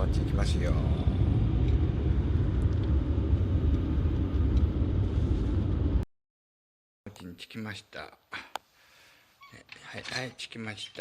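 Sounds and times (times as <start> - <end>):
car interior road and engine noise: 0.0 - 6.0.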